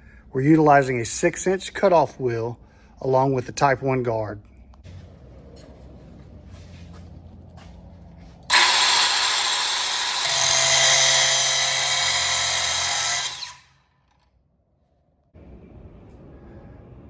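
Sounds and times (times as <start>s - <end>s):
angle grinder cutting: 8.5s - 13.8s.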